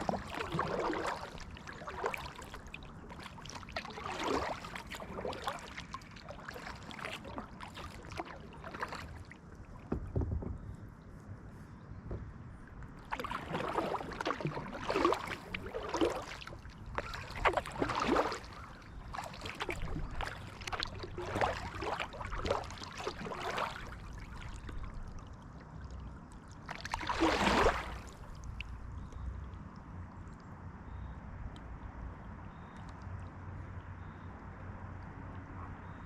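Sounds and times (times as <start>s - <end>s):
kayak paddle splashing water: 0.0s - 10.7s, 12.8s - 29.2s.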